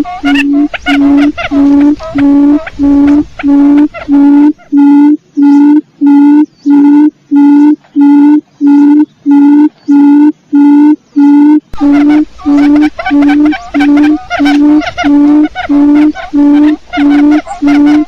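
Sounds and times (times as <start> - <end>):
background hiss: 0.0 - 6.2, 11.7 - 18.0
low hooting quail call: 0.0 - 18.0.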